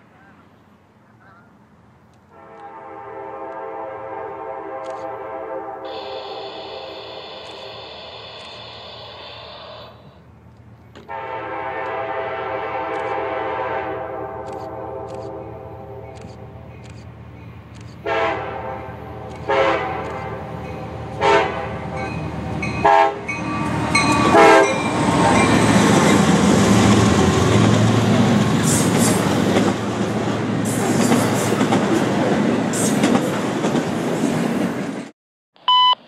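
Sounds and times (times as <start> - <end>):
locomotive air horn blasts: 2.3 - 10.1, 11.0 - 15.7, 18.0 - 20.4, 21.2 - 22.2, 22.8 - 25.0
train wheels rumbling on rail: 5.8 - 35.1.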